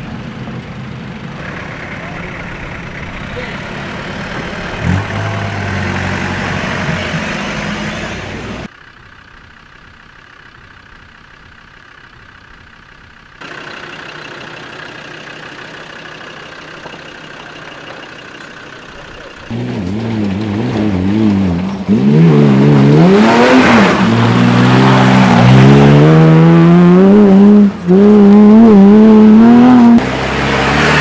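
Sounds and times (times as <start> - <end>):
off-road engines idling: 0.0 - 26.0
loud engine revving: 1.4 - 8.7, 19.5 - 31.0.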